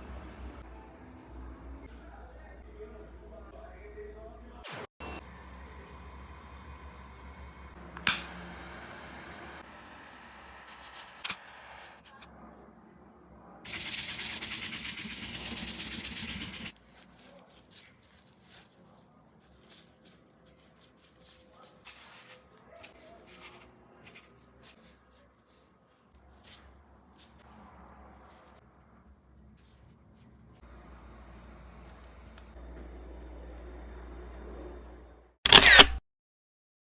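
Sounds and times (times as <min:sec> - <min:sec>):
sharp click: 0:08.0 - 0:08.4, 0:35.5 - 0:36.0
spray can hissing: 0:13.7 - 0:16.7.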